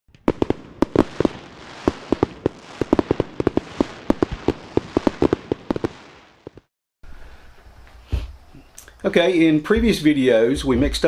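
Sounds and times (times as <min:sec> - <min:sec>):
fireworks bangs: 0:00.1 - 0:06.7.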